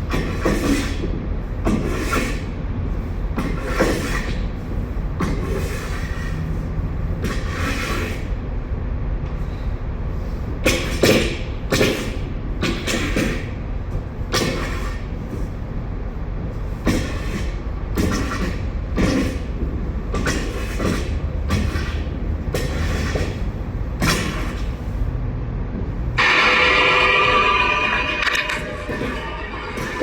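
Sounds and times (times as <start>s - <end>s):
low rumble: 25.9s - 30.0s.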